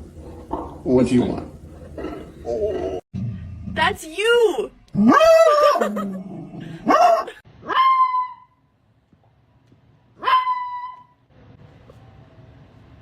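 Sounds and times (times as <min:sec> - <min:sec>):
dog yelping: 0:06.9 - 0:08.6, 0:10.2 - 0:11.2
dog barking: 0:10.2 - 0:11.0.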